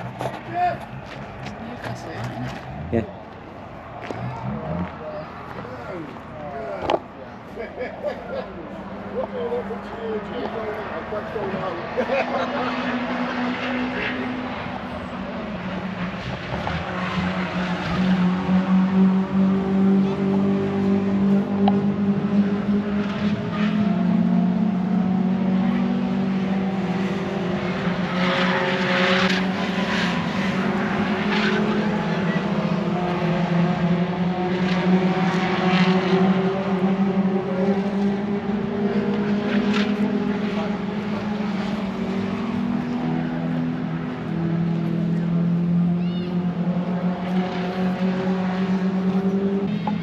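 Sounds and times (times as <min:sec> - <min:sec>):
lorry engine droning: 0:00.0 - 0:50.0.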